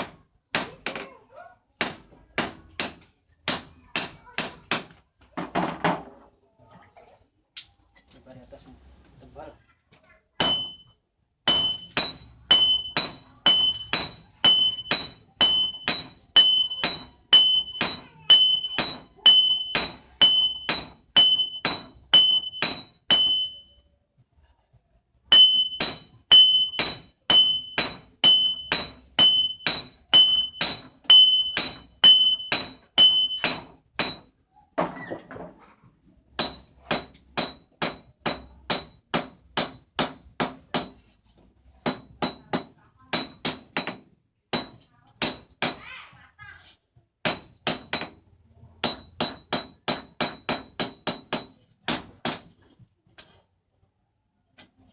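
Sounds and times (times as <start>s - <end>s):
hammer striking steel on anvil: 0.0s - 1.2s, 1.8s - 5.0s, 10.4s - 23.7s, 25.3s - 34.4s, 36.4s - 41.0s, 41.8s - 45.9s, 47.2s - 48.2s, 48.8s - 52.5s.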